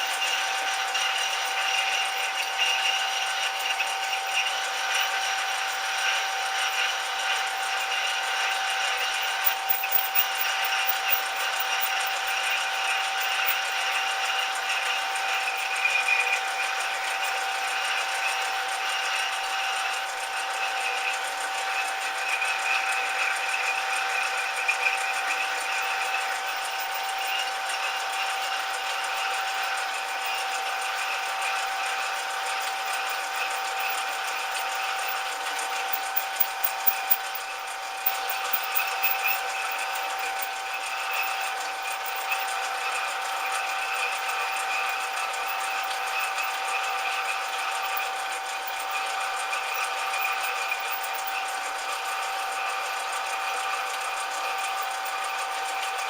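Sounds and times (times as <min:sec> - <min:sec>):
metal lathe motor whine: 0:00.0 - 0:56.0
sharp ticks: 0:09.3 - 0:15.4, 0:31.9 - 0:43.0.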